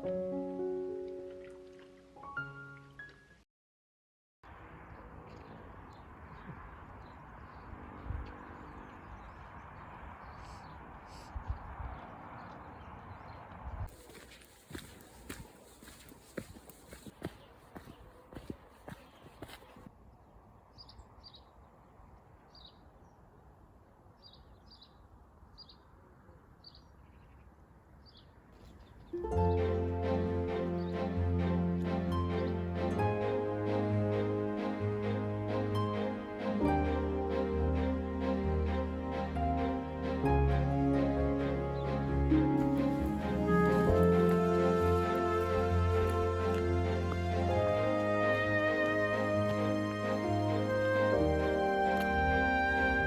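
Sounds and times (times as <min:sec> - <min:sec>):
outdoor background noise: 0:04.4 - 0:53.0.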